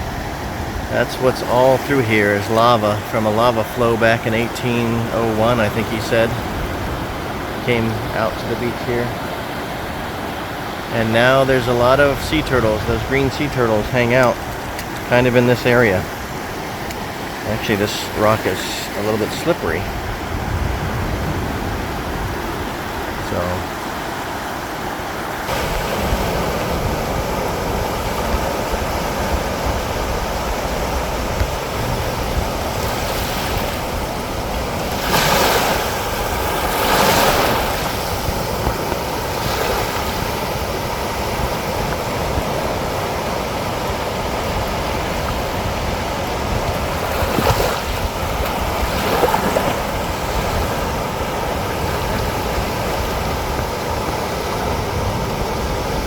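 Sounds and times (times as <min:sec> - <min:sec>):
ocean surf on rocks: 0:00.0 - 0:56.0.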